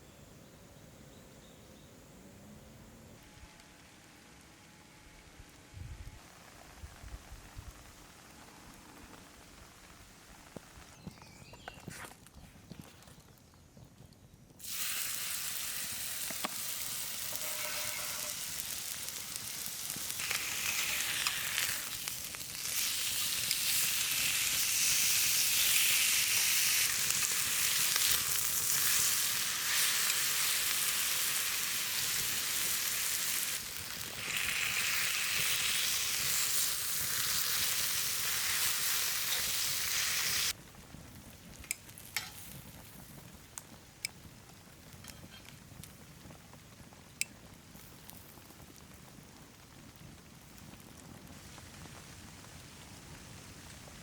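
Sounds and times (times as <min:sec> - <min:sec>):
food sizzling in a pan: 0:14.6 - 0:40.6, 0:41.8 - 0:43.1.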